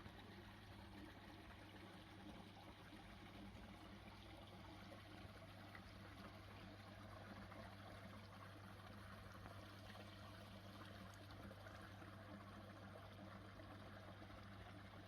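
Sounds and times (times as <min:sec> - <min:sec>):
low steady hum: 0:00.0 - 0:15.0
water running and trickling: 0:00.0 - 0:15.0.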